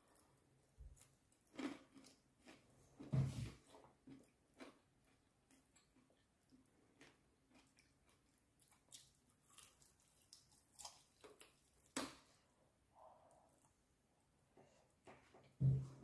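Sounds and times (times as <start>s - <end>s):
crunchy chewing of fried chicken: 0.0s - 12.0s.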